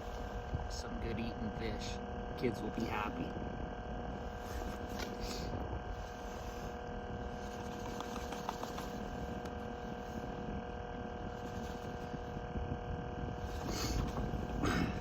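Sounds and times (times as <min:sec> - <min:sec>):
faint steady hum: 0:00.0 - 0:15.0
wind rumbling on microphone: 0:00.0 - 0:15.0
small clicks: 0:07.8 - 0:09.6.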